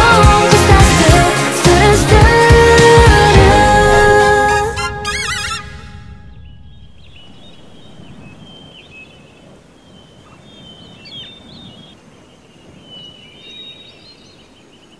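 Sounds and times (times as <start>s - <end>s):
birds chirping: 3.7s - 14.9s.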